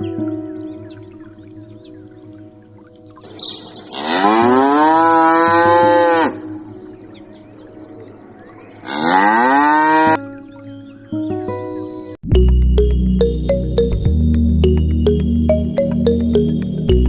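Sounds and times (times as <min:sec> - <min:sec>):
cow mooing: 0:04.0 - 0:06.4, 0:08.9 - 0:10.2.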